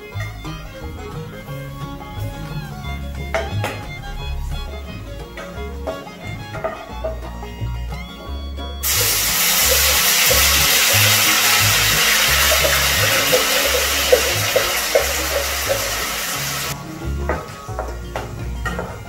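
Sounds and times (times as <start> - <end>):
background music: 0.0 - 19.0
oil crackles: 8.8 - 16.8
paste sizzling in hot oil: 8.8 - 16.8.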